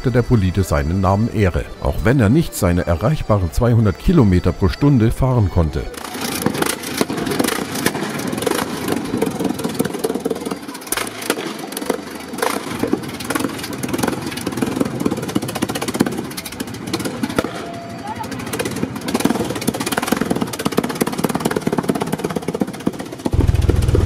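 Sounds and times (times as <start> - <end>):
engine exhaust cracks: 6.0 - 24.0.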